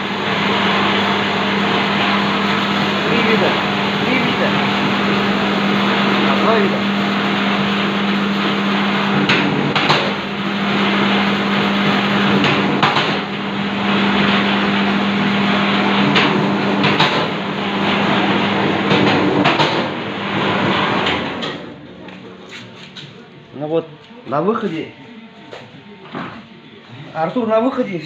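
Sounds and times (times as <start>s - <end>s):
cable stripping machine running: 0.0s - 22.3s.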